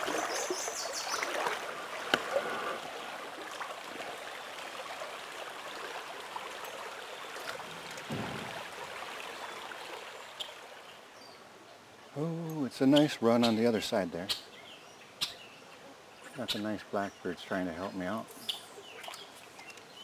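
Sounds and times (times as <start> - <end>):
stream water running: 0.0 - 20.0
short low thud: 8.0 - 9.0.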